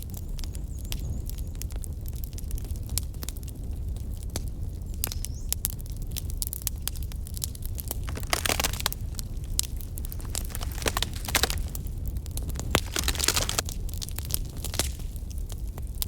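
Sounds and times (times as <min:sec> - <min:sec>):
campfire crackling: 0:06.2 - 0:15.7.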